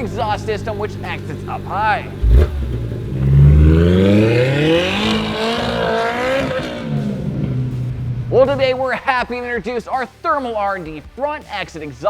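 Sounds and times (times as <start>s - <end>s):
engine accelerating hard: 0.0s - 9.3s.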